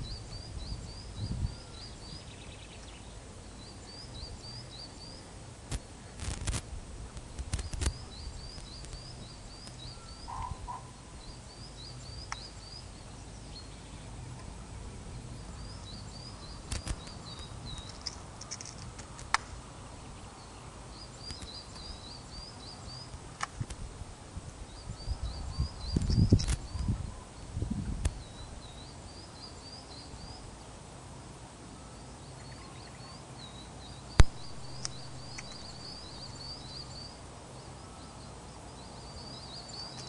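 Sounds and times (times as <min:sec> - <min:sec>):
wind rumble on microphone: 0:00.0 - 0:02.6, 0:05.6 - 0:11.4, 0:21.2 - 0:29.1
bird singing chirped notes: 0:00.0 - 0:05.4, 0:07.6 - 0:18.2, 0:19.8 - 0:23.1, 0:31.7 - 0:40.0
sharp clicks: 0:16.7 - 0:19.5, 0:34.2 - 0:35.9.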